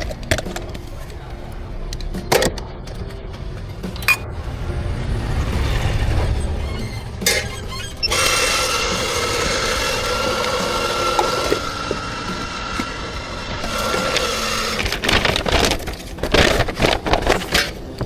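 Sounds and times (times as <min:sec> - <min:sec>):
glassy clink: 0:04.0 - 0:04.3
steam wand hissing: 0:08.1 - 0:14.9.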